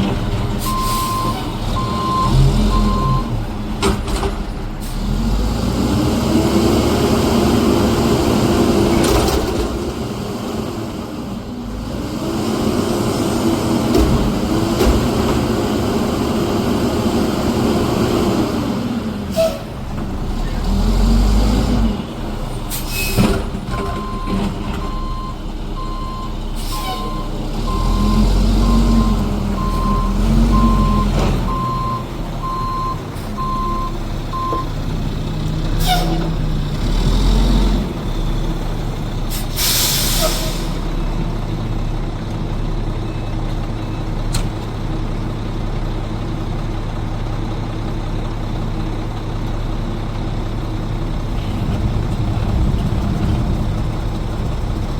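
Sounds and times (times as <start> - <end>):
diesel engine: 0.0 - 54.9
air brakes hissing: 0.6 - 1.5, 19.3 - 19.8, 22.7 - 23.4, 26.6 - 27.2, 35.8 - 36.3, 39.3 - 40.9
reversing alarm beeping: 0.7 - 3.3, 24.0 - 34.8.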